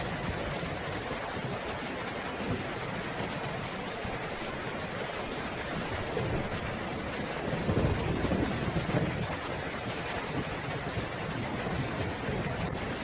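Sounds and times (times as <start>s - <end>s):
heavy rain falling: 0.0s - 13.0s
distant thunder rumble: 5.8s - 13.0s.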